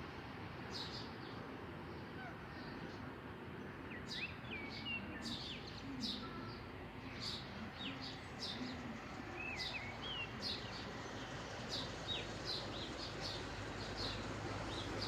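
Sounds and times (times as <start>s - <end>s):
steady background noise: 0.0s - 15.0s
small birds chirping: 3.8s - 15.0s.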